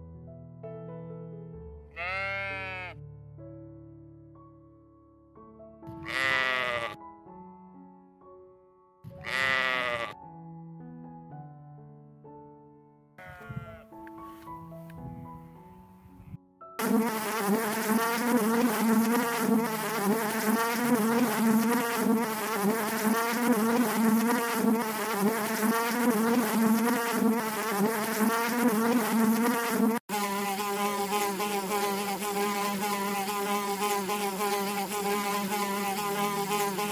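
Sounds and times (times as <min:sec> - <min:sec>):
honeybees buzzing: 0:16.8 - 0:36.9.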